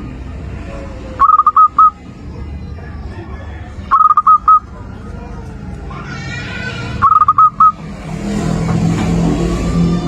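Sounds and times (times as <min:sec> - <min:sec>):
dove cooing: 0:01.2 - 0:02.0, 0:03.9 - 0:04.7, 0:07.0 - 0:07.8.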